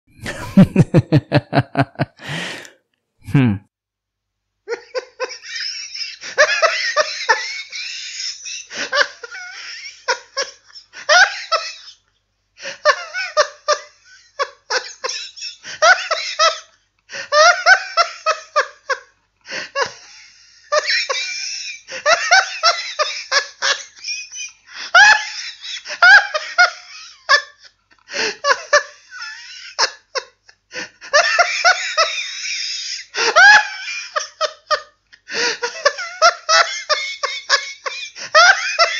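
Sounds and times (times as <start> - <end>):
high-pitched laughter: 0.2 - 2.7.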